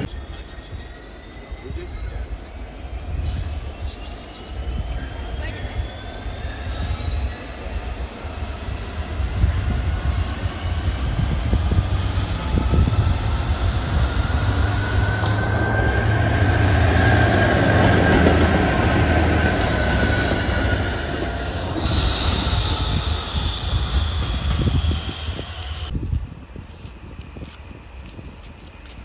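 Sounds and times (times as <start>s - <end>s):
train rumbling: 0.0s - 29.0s
high squealing tones: 4.6s - 25.9s.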